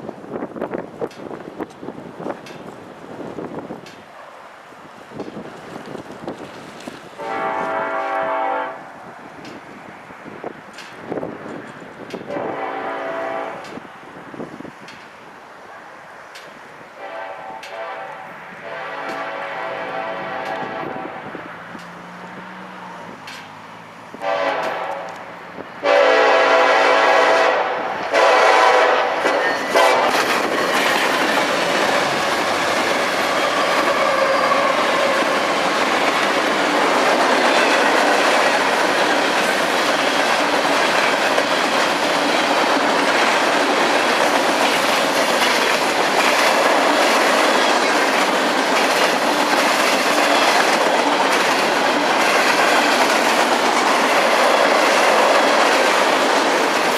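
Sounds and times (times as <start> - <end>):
train wheels rumbling on rails: 0.0 - 56.9
train air horn blasts: 7.2 - 9.0, 12.3 - 13.8, 17.0 - 21.5, 24.2 - 30.2, 33.3 - 35.5.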